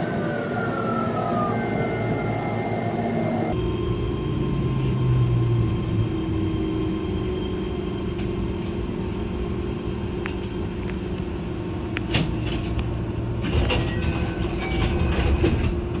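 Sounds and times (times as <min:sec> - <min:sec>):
train motor tone: 0:00.0 - 0:03.6
wheel and brake squeals: 0:00.0 - 0:03.6, 0:11.3 - 0:12.3
electric train rumbling: 0:00.0 - 0:16.0.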